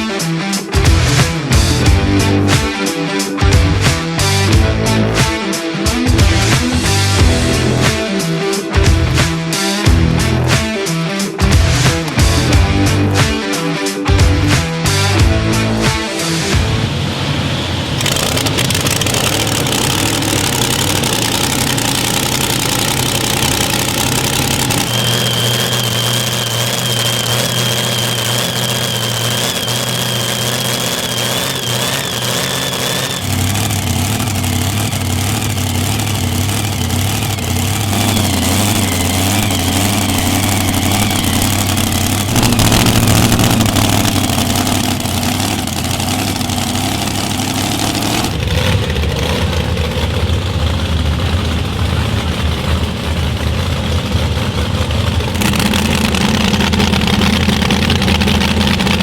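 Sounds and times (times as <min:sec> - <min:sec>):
engines idling: 0:00.0 - 0:59.0
high thin whine: 0:18.0 - 0:48.4.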